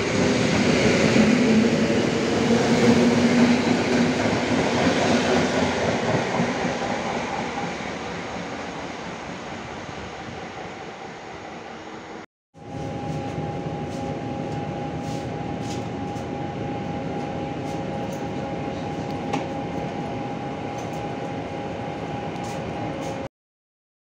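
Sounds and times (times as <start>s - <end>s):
train wheels rumbling on rails: 0.0s - 10.5s.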